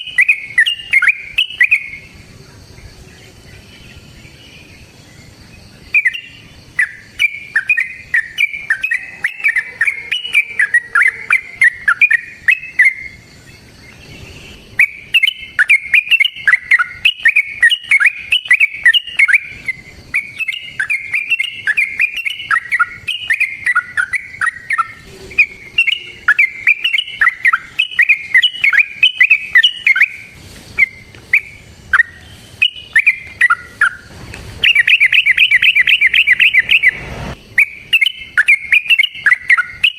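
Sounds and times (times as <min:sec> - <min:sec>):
bulbul singing warbling notes: 0:14.8 - 0:39.9.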